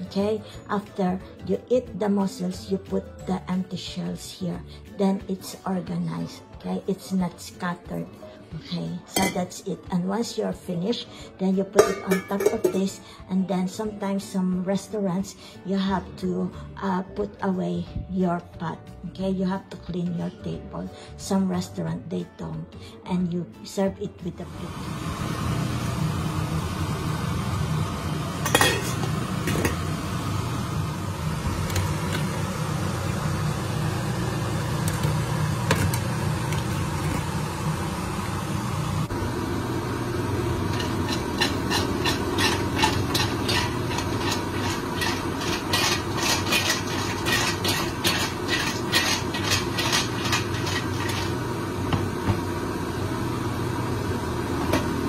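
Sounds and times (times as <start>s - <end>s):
mussels rattling in pot: 40.7s - 51.4s.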